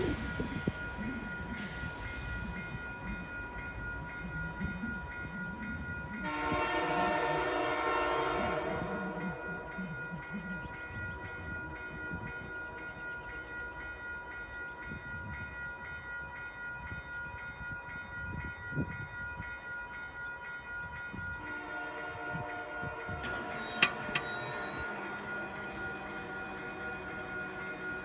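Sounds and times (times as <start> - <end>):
high ringing tones: 8.7 - 28.0.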